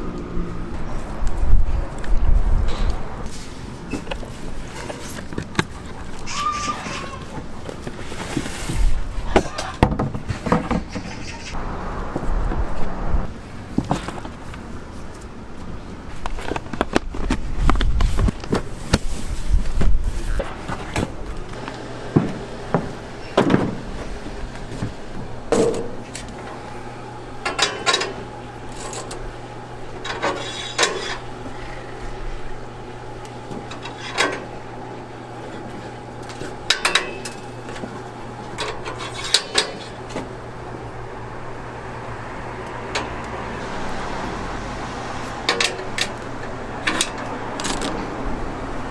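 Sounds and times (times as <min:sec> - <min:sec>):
steady low hum: 0:11.1 - 0:48.9
low rumble: 0:11.6 - 0:13.4
metal utensils clinking: 0:27.4 - 0:29.2, 0:36.7 - 0:37.8, 0:38.5 - 0:40.1.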